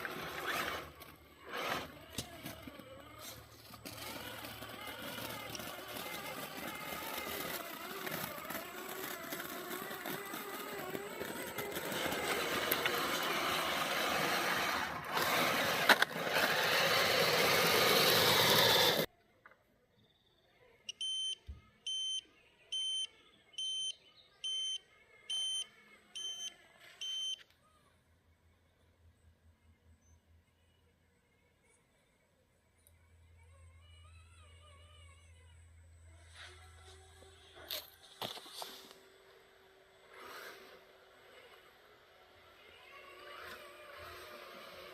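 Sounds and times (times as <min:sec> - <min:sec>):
radio-controlled truck driving: 0:00.0 - 0:19.1, 0:28.7 - 0:44.9.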